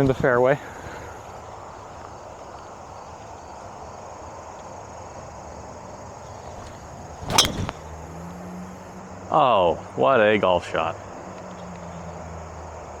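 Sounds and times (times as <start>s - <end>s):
outdoor background noise: 0.0s - 13.0s
golf club striking ball: 6.5s - 8.5s.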